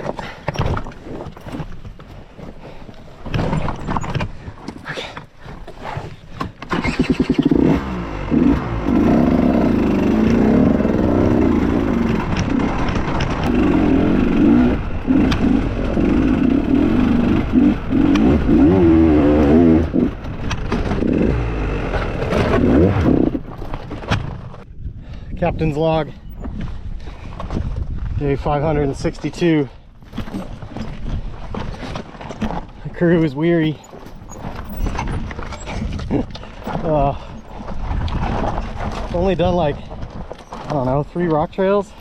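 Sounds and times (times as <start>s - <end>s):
dirt bike engine revving: 6.8s - 23.5s.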